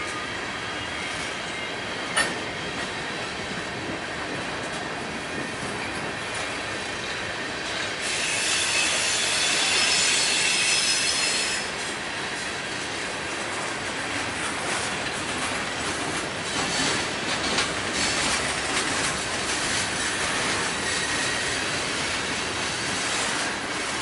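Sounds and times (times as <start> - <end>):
freight train wheels rumbling on rail: 0.0 - 24.0
high-pitched wheel squeal: 8.0 - 11.7.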